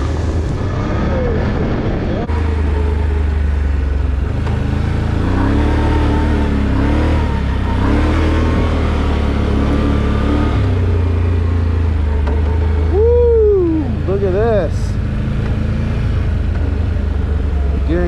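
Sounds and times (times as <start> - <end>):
off-road vehicle engine: 0.0 - 18.0.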